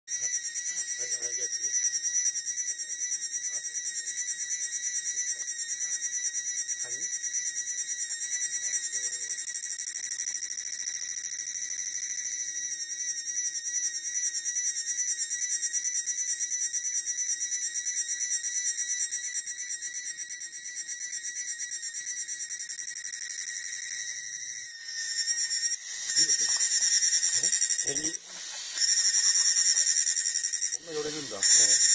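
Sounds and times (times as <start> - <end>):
cicada buzzing: 24.8 - 31.9.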